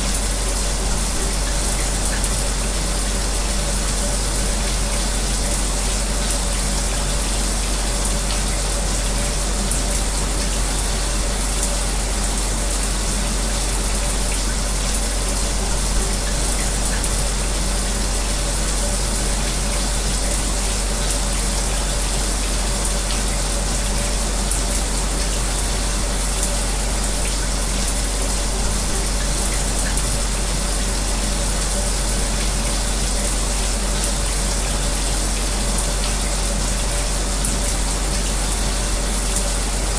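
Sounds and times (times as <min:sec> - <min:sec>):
electric fan humming: 0:00.0 - 0:39.9
shower spray running: 0:00.0 - 0:39.9.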